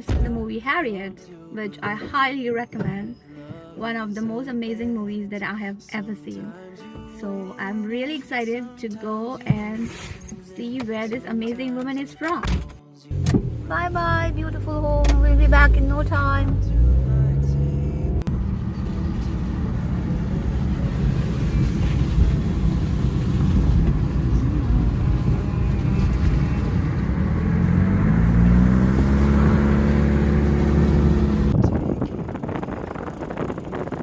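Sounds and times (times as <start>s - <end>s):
car engine: 13.1s - 34.0s
road rumble: 13.1s - 34.0s.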